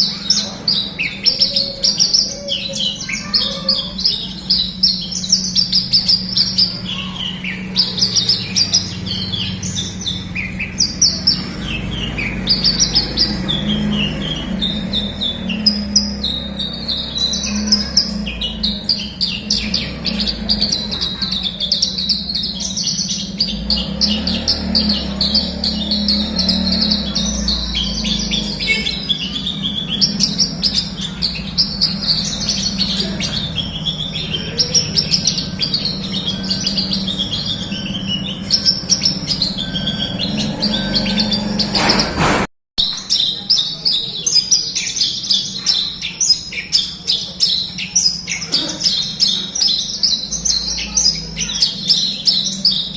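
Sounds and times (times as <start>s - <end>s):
steady low hum: 0.0s - 42.3s
bird song chirps and trills: 0.0s - 52.9s.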